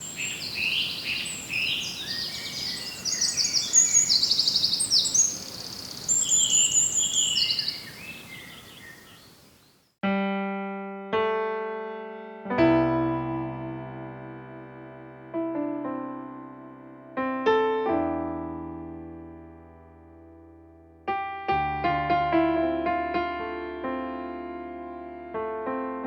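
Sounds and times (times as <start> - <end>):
bird singing chattering trills: 0.0 - 9.9
piano notes: 10.0 - 26.0.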